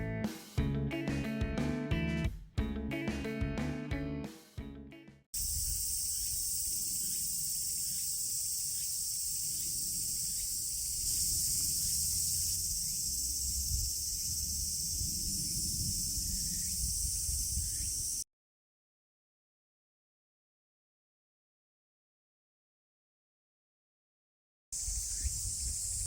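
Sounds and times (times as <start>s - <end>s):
insects shrilling: 5.4s - 18.2s, 24.8s - 26.0s.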